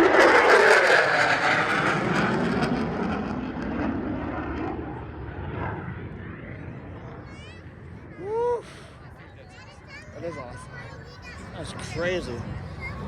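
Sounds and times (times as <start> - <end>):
fighter jet flying away: 0.0 - 8.2.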